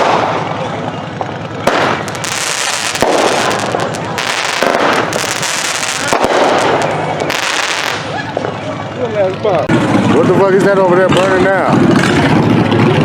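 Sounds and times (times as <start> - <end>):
firework bangs: 0.0 - 0.6, 1.2 - 8.6
fireworks crackling and hissing: 1.2 - 8.6.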